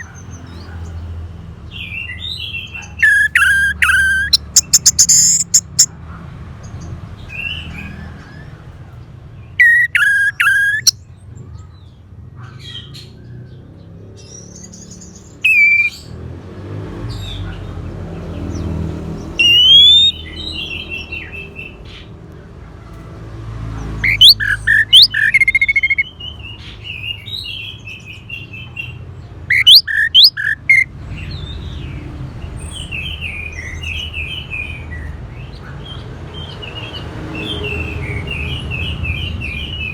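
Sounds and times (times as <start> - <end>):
thrush song whistles and warbles: 2.9 - 5.9, 9.6 - 11.0, 15.4 - 16.1, 19.4 - 20.6, 24.0 - 26.1, 29.5 - 30.9.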